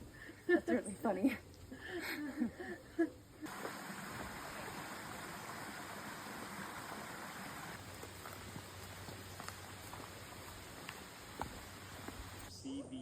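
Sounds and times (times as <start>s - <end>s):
stream water flowing: 3.4s - 12.5s.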